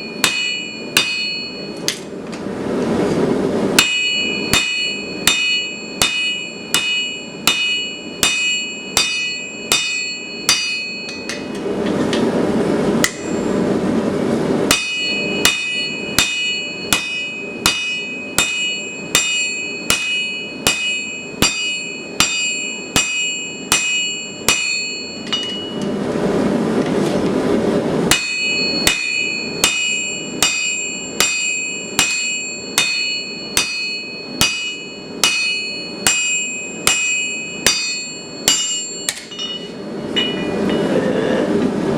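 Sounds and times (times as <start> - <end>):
hammer striking steel on anvil: 0.0 - 2.1, 3.7 - 12.3, 13.0 - 13.6, 14.6 - 26.0, 28.1 - 41.0
steady rushing noise: 24.8 - 30.2.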